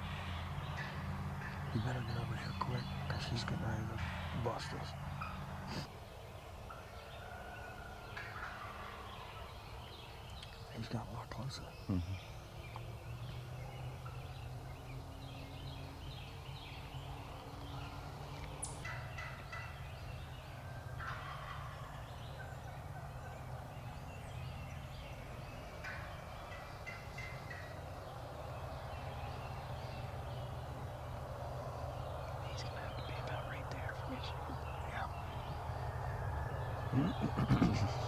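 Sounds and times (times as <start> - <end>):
small birds chirping: 0.0 - 38.0
turkey gobbling: 21.0 - 23.4, 36.9 - 38.0
steady low rumble: 21.5 - 38.0.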